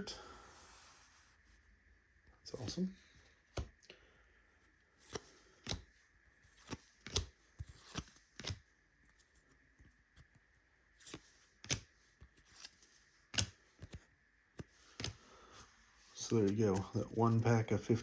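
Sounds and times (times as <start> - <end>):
trading cards snapping: 5.0 - 5.9, 6.6 - 8.6, 11.0 - 11.9, 13.3 - 14.0.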